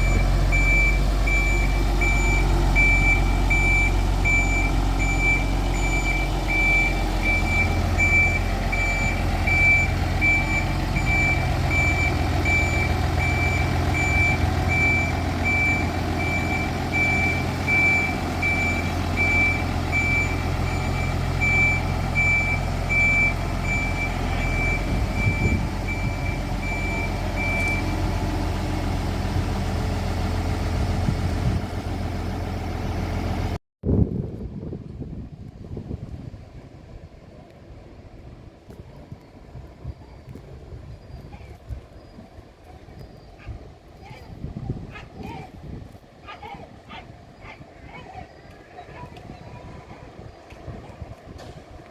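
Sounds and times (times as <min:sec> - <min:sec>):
reversing alarm beeping: 0:00.0 - 0:28.4
vehicle engine running: 0:00.0 - 0:33.6.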